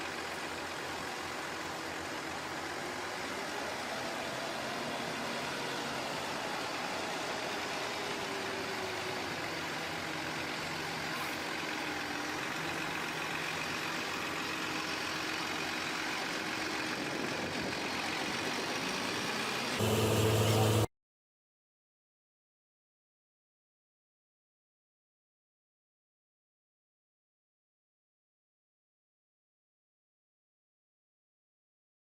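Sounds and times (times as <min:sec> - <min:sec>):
truck engine running: 0:00.0 - 0:20.9.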